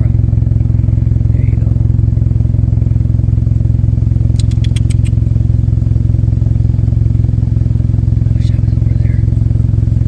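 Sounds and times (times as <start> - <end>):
engine idling: 0.0 - 10.0
sharp high clicks: 4.3 - 5.2.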